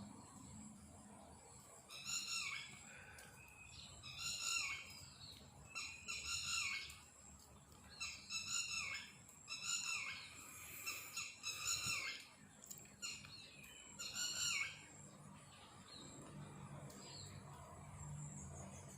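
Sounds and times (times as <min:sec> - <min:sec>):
bird shrill calls: 0:04.0 - 0:05.0, 0:08.0 - 0:12.3, 0:14.0 - 0:14.8.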